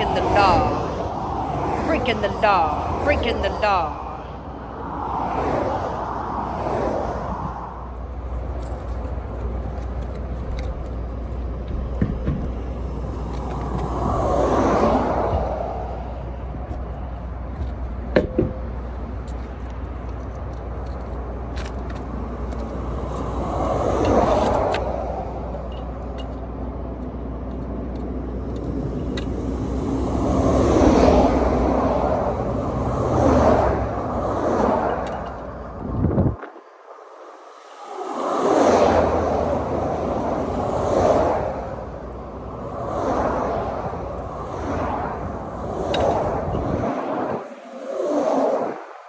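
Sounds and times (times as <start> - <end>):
highway traffic passing: 0.0 - 49.0
vehicle whoosh: 4.4 - 8.0, 37.7 - 49.0.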